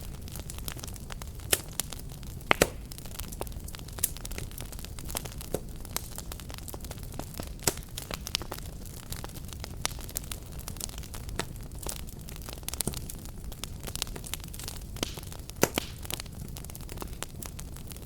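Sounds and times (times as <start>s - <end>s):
low rumble of burning: 0.0s - 18.0s
wood fire crackling: 0.0s - 18.0s.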